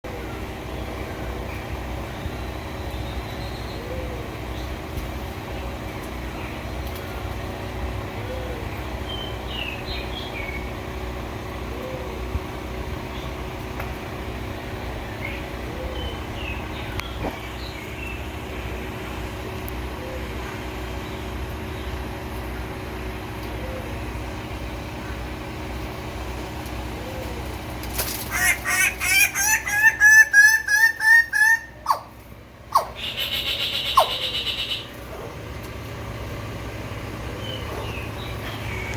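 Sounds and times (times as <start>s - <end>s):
low rumble with hum: 0.0s - 38.9s
bird courtship calls: 28.0s - 35.0s.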